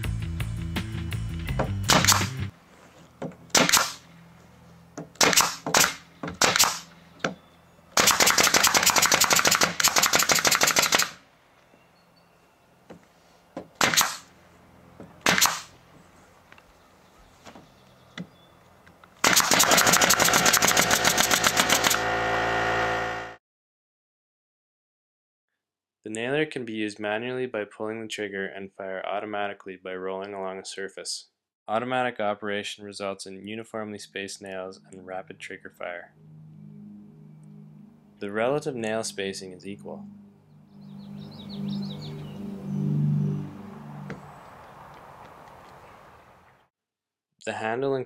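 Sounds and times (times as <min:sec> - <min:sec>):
nail gun firing: 0:01.8 - 0:02.4, 0:03.5 - 0:04.0, 0:05.1 - 0:06.9, 0:08.0 - 0:11.2, 0:13.8 - 0:14.3, 0:15.2 - 0:15.8, 0:19.2 - 0:22.2.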